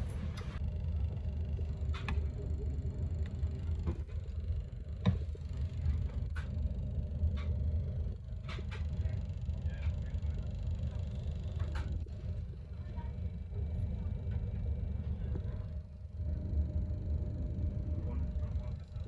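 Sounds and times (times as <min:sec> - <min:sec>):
low rumble of train interior: 0:00.0 - 0:19.0.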